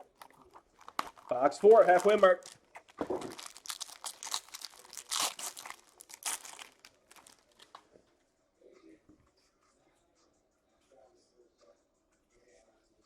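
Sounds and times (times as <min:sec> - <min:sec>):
plastic wrapping crinkling and tearing: 0:00.0 - 0:07.8.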